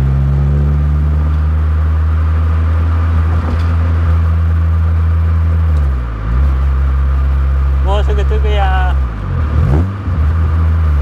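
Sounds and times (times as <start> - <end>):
car engine cruising: 0.0 - 11.0
road noise: 0.0 - 11.0.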